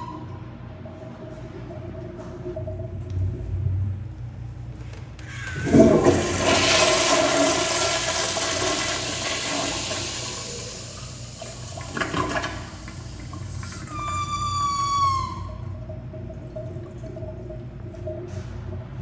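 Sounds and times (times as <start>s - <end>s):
toilet flushing: 5.2s - 19.0s.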